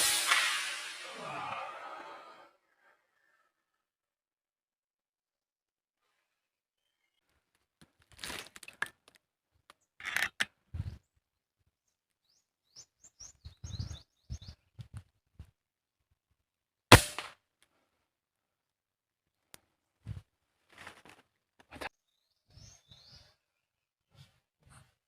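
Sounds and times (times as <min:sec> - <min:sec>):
loud sharp crack: 0:00.0 - 0:01.7, 0:16.9 - 0:17.4
rustling and handling noises: 0:07.3 - 0:09.2, 0:20.0 - 0:21.9
bird chirps: 0:12.2 - 0:14.8, 0:22.0 - 0:23.6.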